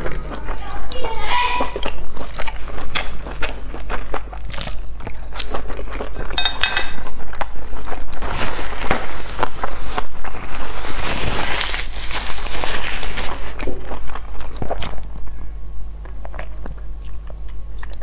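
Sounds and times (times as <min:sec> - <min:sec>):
person chewing with wet smacks: 0:00.0 - 0:06.4, 0:07.0 - 0:10.7, 0:11.6 - 0:18.0.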